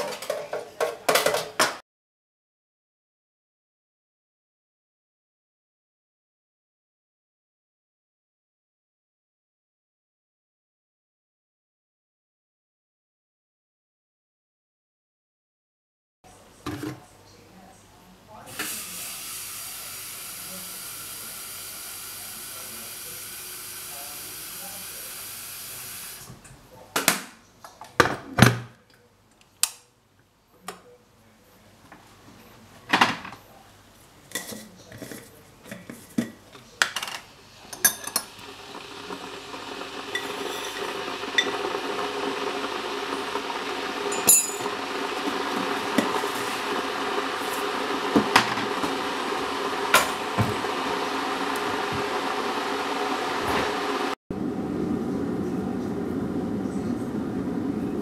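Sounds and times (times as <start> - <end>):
utensils and dishes clinking: 34.3 - 38.5, 44.1 - 44.8.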